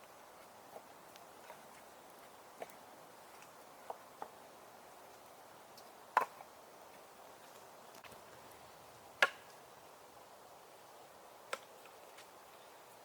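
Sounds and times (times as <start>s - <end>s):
quiet hiss: 0.0s - 13.0s.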